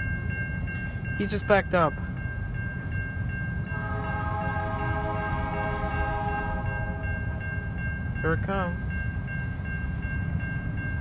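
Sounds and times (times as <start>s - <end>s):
crossing bell ringing: 0.0s - 11.0s
freight train rumbling: 0.0s - 11.0s
locomotive horn chord: 3.7s - 7.8s.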